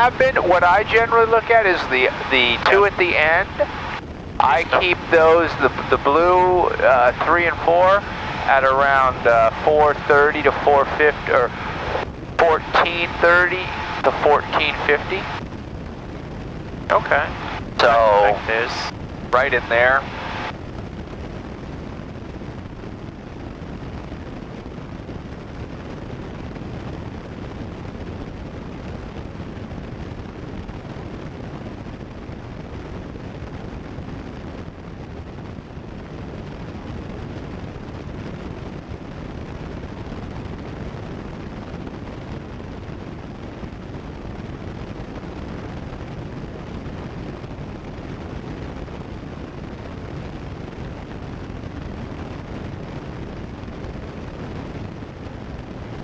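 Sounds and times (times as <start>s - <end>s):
airplane cabin engine noise: 0.0s - 27.3s.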